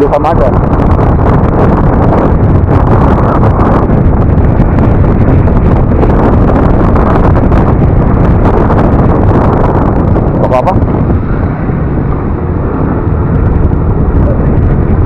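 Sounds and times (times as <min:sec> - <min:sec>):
road noise: 0:00.0 - 0:15.0
wind on microphone: 0:00.0 - 0:15.0
scooter engine: 0:10.9 - 0:15.0.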